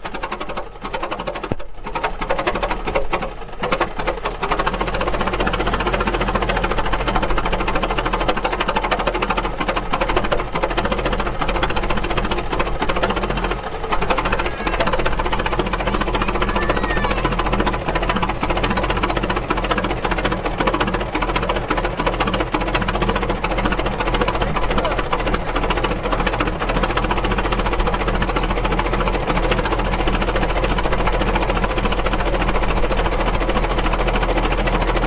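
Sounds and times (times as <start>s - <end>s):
old engine clattering: 0.0s - 35.0s.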